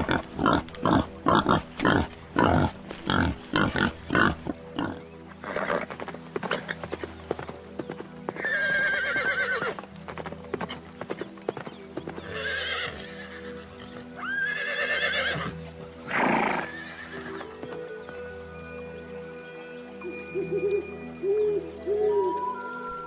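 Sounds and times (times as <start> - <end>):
background music: 0.0 - 23.0
hooves clip-clopping: 0.0 - 23.0
horse whinnying: 8.4 - 9.8, 12.3 - 13.6, 14.2 - 17.4.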